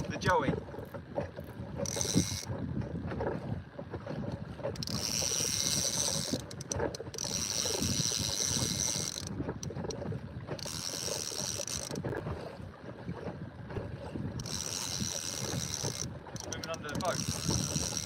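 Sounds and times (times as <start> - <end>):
low rumble of wind and water: 0.0 - 18.0
fishing reel cranking: 1.7 - 2.6, 4.7 - 10.0, 10.6 - 12.1, 14.4 - 18.0.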